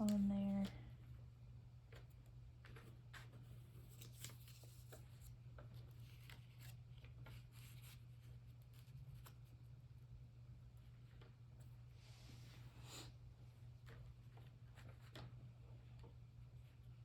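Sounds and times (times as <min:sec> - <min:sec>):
paper cutouts rustling and tapping: 0:01.8 - 0:09.5, 0:13.7 - 0:16.7.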